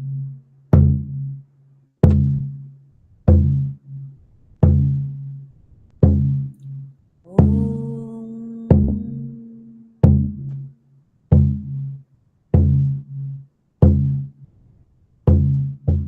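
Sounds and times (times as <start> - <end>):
deep hand drum beats: 2.0 - 2.6, 3.3 - 3.8, 4.6 - 5.3, 6.0 - 6.5, 7.3 - 10.7, 11.3 - 12.0, 12.6 - 14.3, 15.3 - 16.0.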